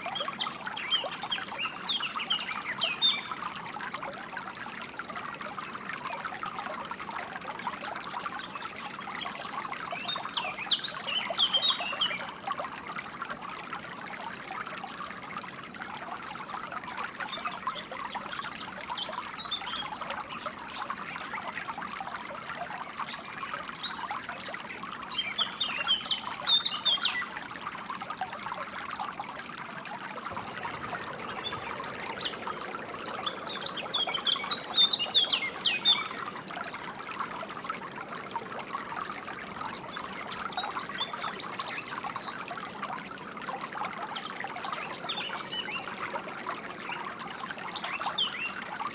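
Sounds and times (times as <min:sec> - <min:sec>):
water trickling and flowing: 0:00.0 - 0:48.9
birds chirping: 0:30.2 - 0:36.2.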